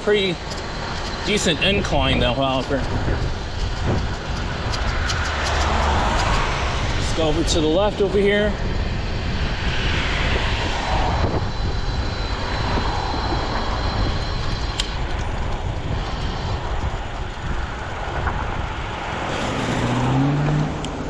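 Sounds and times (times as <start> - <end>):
road noise: 0.0 - 21.0
wind on microphone: 0.0 - 21.0
car engine accelerating: 18.0 - 21.0.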